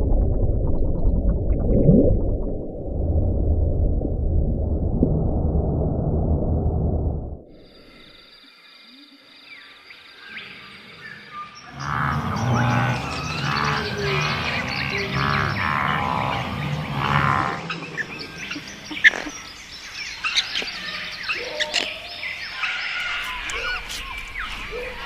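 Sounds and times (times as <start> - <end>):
wild birds calling: 10.2 - 25.0.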